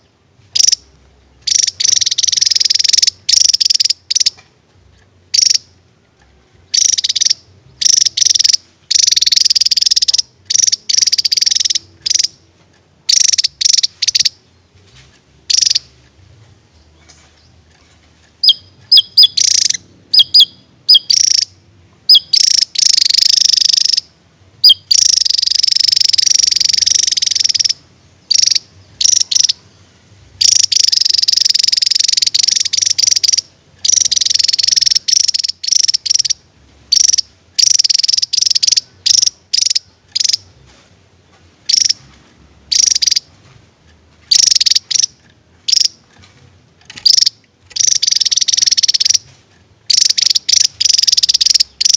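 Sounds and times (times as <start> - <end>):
bird sharp chirps: 0.0 - 4.4, 5.3 - 5.8, 6.7 - 12.4, 13.1 - 14.8, 15.5 - 16.0, 18.4 - 29.8, 30.4 - 40.8, 42.7 - 43.4, 46.9 - 51.9
bird buzzy trilled song: 0.0 - 51.9.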